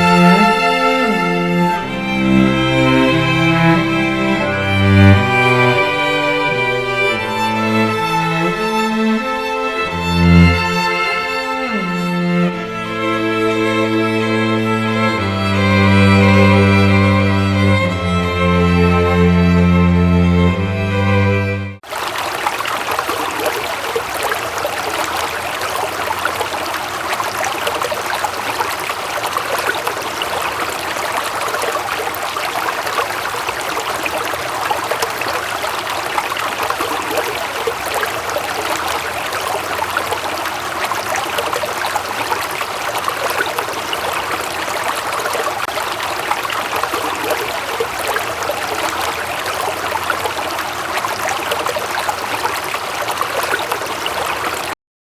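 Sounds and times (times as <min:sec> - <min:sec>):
stream flowing: 0:00.0 - 0:54.8.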